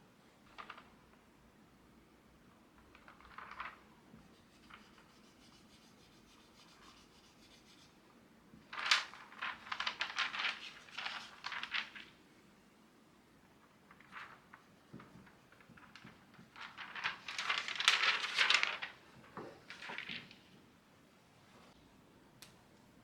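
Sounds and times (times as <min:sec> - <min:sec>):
scratching and rustling: 0:08.7 - 0:12.1, 0:13.9 - 0:20.5.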